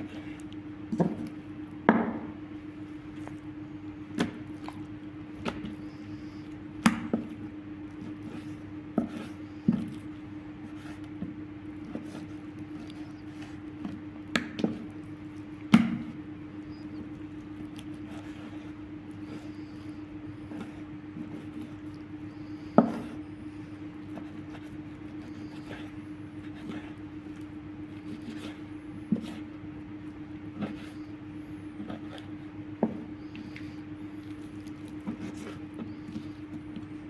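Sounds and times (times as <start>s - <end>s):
cleaver chopping on wooden board: 1.9s - 2.4s, 15.7s - 16.1s.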